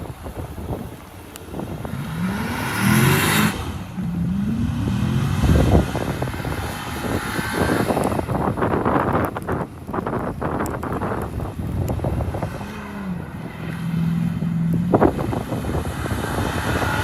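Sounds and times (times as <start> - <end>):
rough rushing noise: 0.0 - 17.0
engine revving: 1.8 - 8.4, 12.2 - 17.0.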